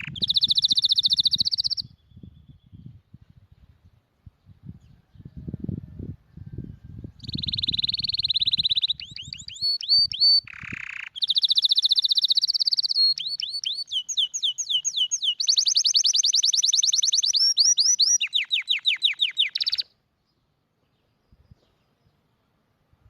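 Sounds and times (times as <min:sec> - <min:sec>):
canary singing: 0:00.0 - 0:02.7, 0:07.1 - 0:20.0.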